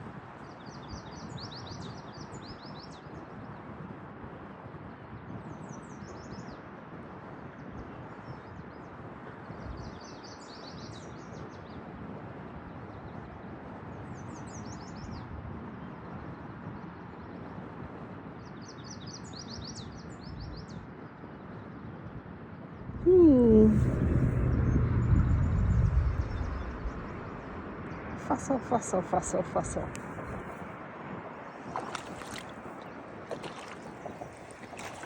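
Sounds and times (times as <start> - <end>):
songbird singing: 31.4 - 35.0.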